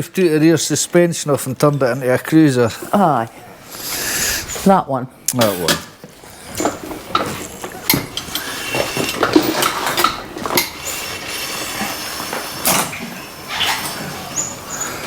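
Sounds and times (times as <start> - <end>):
metal clanking and rattling: 5.4 - 14.7
short squeaks: 6.4 - 15.0.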